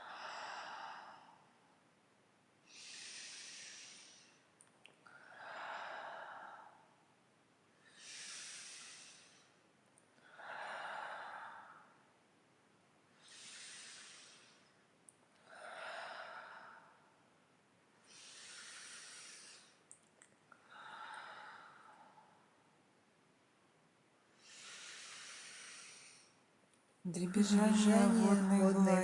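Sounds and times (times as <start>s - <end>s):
person breathing deeply: 0.0s - 1.6s, 2.7s - 4.5s, 5.1s - 7.0s, 7.8s - 9.6s, 13.2s - 14.7s, 18.0s - 19.8s, 24.4s - 26.4s.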